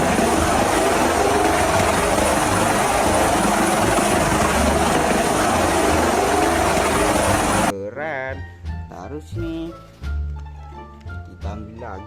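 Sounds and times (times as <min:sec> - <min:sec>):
helicopter engine and rotor noise: 0:00.0 - 0:07.7.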